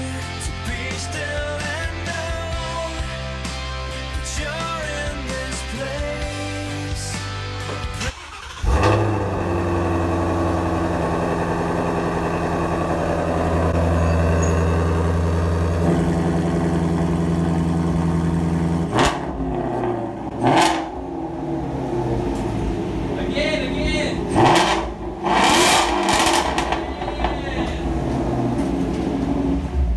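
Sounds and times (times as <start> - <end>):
car engine starting and idling: 6.0 - 29.9
car engine revving: 7.6 - 29.9.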